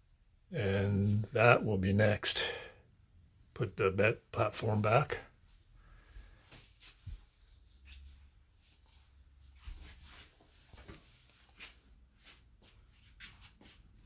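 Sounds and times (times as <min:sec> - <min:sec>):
faint clicks and rustles: 0:05.4 - 0:13.8.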